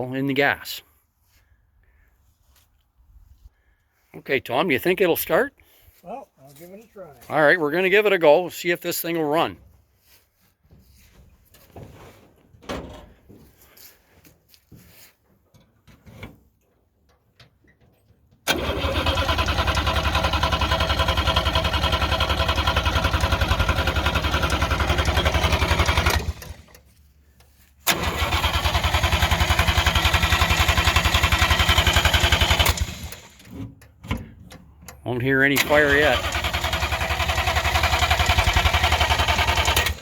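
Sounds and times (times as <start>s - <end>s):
starter cranking engine: 18.5s - 26.9s, 27.8s - 33.6s, 35.5s - 40.0s.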